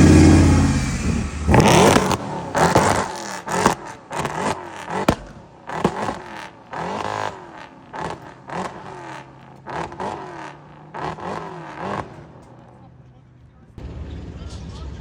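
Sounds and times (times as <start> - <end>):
car engine revving: 0.0 - 13.4
sharp crack: 1.5 - 12.8.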